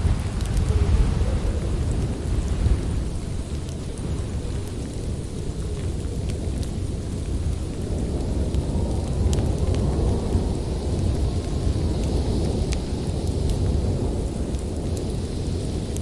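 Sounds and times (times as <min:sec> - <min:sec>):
storm wind rumbling: 0:00.0 - 0:16.0
wood fire crackling: 0:00.0 - 0:16.0.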